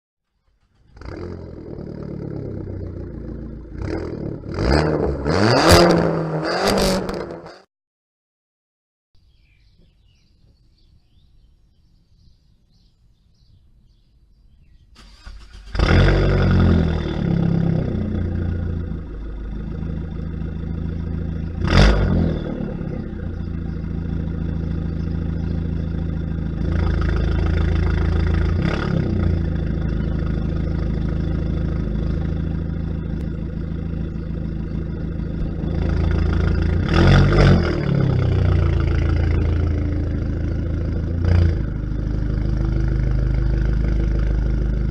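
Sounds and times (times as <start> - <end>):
car engine starting and idling: 0.3 - 6.4, 15.0 - 44.9
engine revving blips: 0.5 - 7.7, 15.0 - 44.9.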